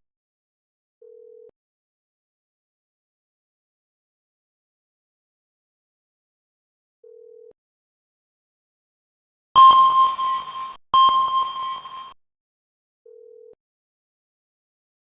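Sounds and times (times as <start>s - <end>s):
electronic alert tone: 9.6s - 12.2s
faint short low beep: 9.6s - 12.2s.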